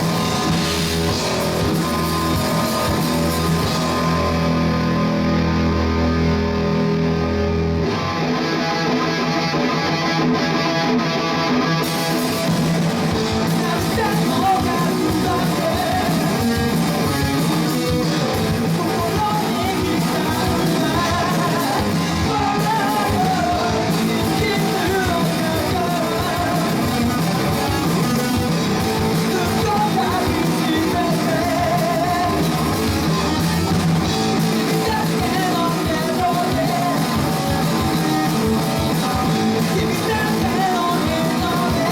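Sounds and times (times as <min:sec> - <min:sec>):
electric guitar: 0:00.0 - 0:41.9
rock band music: 0:00.0 - 0:41.9
person singing: 0:13.1 - 0:41.9.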